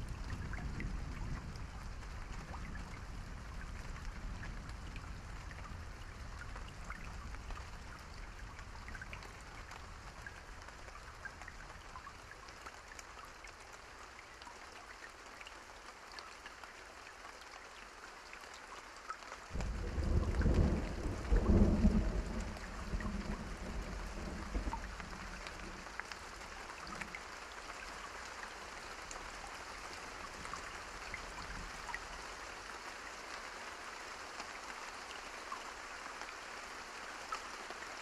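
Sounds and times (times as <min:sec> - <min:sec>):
steady rain: 0:00.0 - 0:38.0
low thunder rumble: 0:19.6 - 0:25.9.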